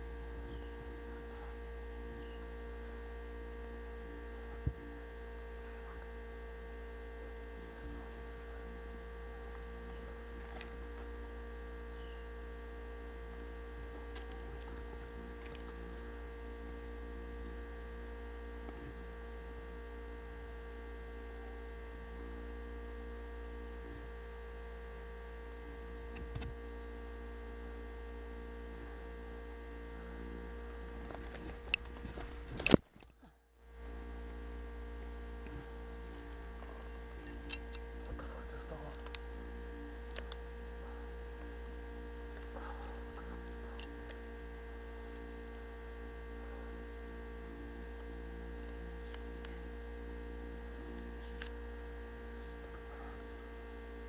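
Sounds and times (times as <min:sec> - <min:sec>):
electrical hum with tones: 0:00.0 - 0:54.0
sharp click: 0:31.6 - 0:33.1.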